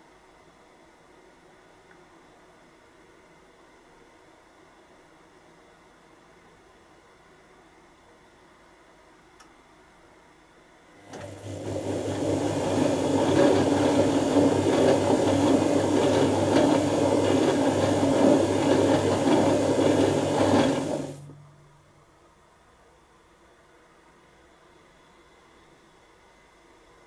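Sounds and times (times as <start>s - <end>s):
washing machine motor hum: 11.0s - 22.0s
wet laundry churning: 11.1s - 21.3s.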